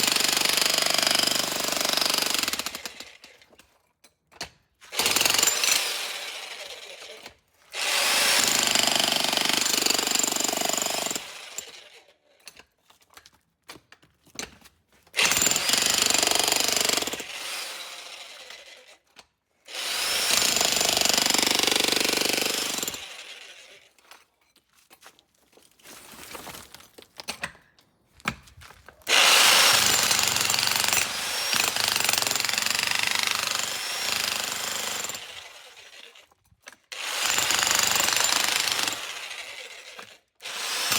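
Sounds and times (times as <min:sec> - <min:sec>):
demolition hammer breaking concrete: 0:20.3 - 0:23.0, 0:29.6 - 0:35.2, 0:37.2 - 0:39.1.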